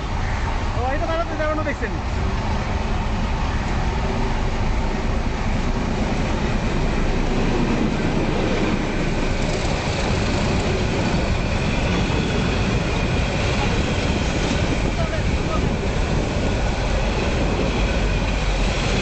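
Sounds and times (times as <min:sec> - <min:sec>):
train carriages rattling on rails: 0:05.5 - 0:19.0.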